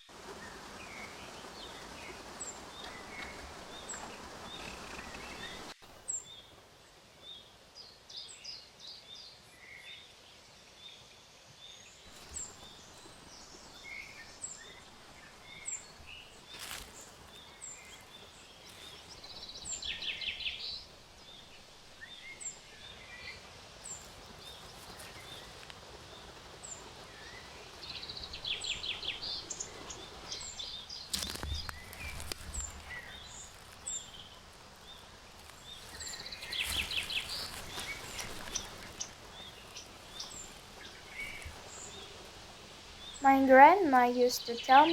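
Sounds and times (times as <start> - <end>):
rustling: 2.1 - 6.0, 12.0 - 22.3, 23.9 - 25.9, 28.4 - 43.0
birds trilling: 35.0 - 42.2.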